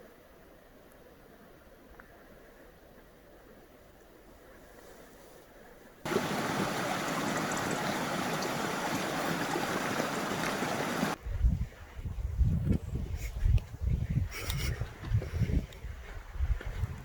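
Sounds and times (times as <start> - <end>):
running water rushing: 6.1 - 11.2
wind buffeting microphone: 6.1 - 17.0.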